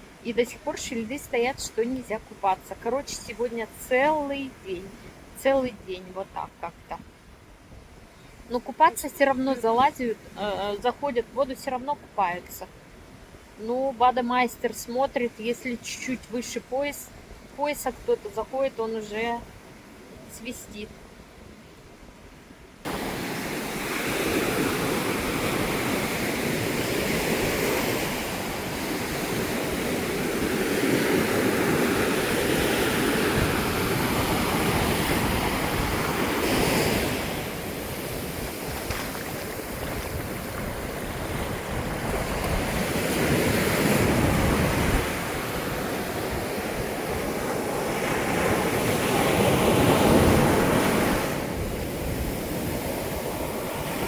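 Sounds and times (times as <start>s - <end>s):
sea surf breaking on beach: 22.8s - 54.0s
wind buffeting microphone: 31.2s - 54.0s.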